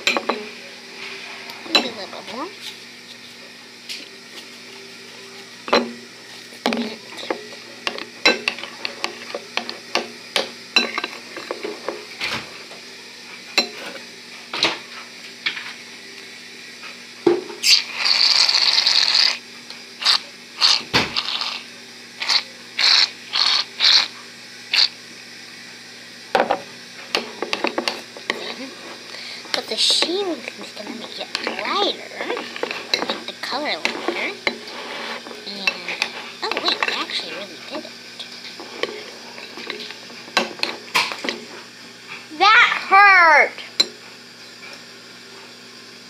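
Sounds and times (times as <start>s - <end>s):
short hissing rattle: 17.6s - 19.4s, 22.2s - 24.1s.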